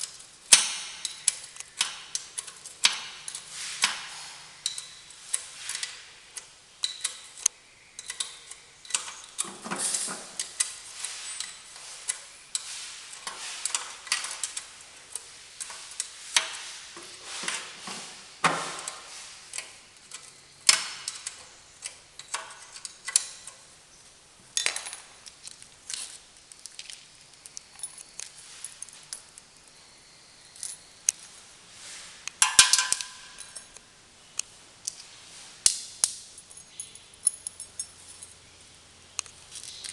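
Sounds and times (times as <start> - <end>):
metallic clinks of hand tools: 4.6 - 5.2, 32.4 - 33.8, 36.0 - 38.4.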